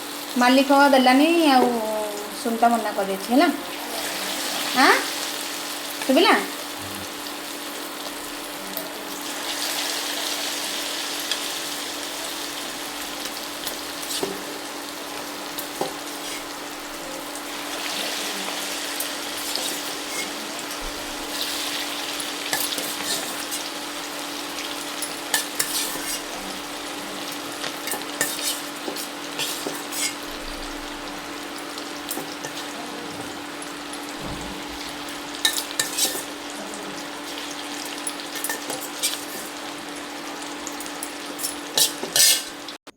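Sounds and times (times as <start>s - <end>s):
food sizzling in hot oil: 0.0s - 42.9s.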